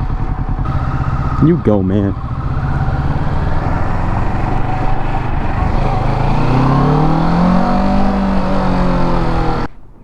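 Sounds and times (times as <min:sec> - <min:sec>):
motorcycle engine accelerating: 0:00.0 - 0:09.8
wind noise: 0:02.6 - 0:10.0.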